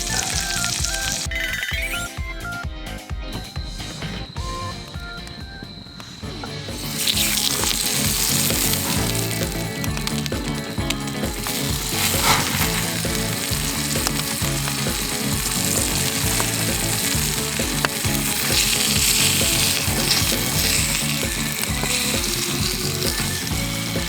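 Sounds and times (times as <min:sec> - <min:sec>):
food sizzling in a pan: 0:00.0 - 0:01.6, 0:06.6 - 0:24.0
quiet background music: 0:00.0 - 0:24.0
stirring in a pan: 0:06.8 - 0:24.0.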